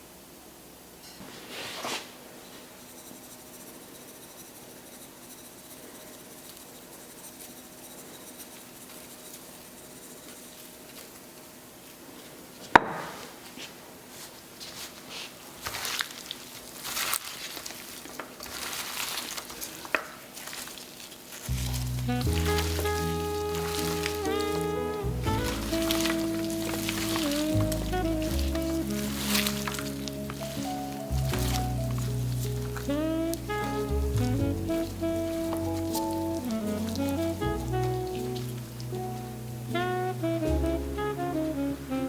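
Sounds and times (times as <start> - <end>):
rustling and light knocks: 8.9 - 39.4.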